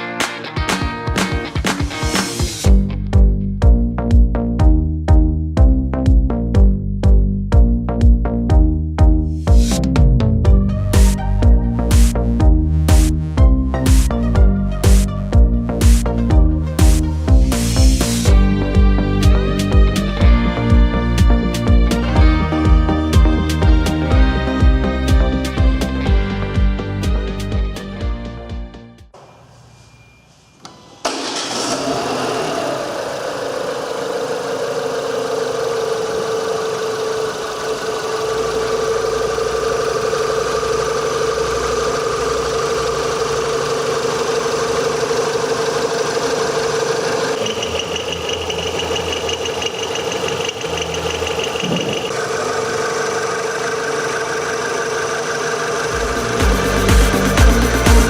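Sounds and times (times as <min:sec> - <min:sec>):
car engine starting and idling: 0:06.3 - 0:29.3, 0:30.6 - 0:58.0
thin high whine: 0:29.2 - 0:31.8.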